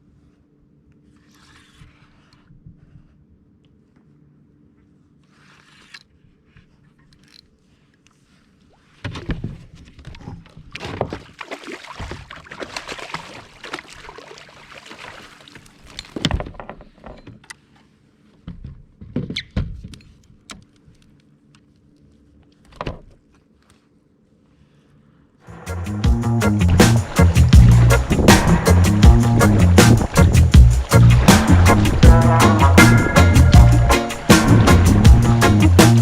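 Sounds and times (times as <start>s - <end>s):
knocks and thumps on kayak: 26.7s - 36.0s.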